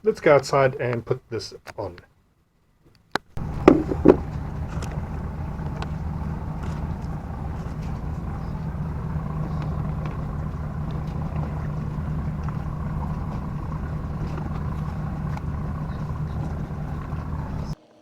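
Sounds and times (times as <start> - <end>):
sharp knocks: 3.4 - 5.0
low motor hum: 3.4 - 17.8.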